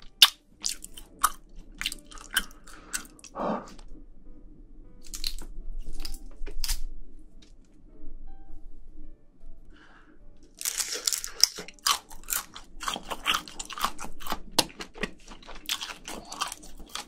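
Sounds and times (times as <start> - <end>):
close chewing with wet smacks: 12.8 - 17.0.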